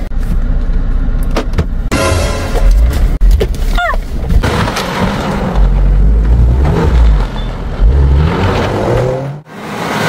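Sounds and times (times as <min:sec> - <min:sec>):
engine rumbling and revving: 0:02.6 - 0:10.0.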